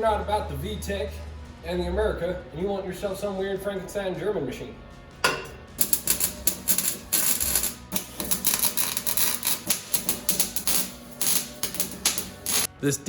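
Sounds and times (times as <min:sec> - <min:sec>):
welder arc crackling: 0:05.8 - 0:12.7.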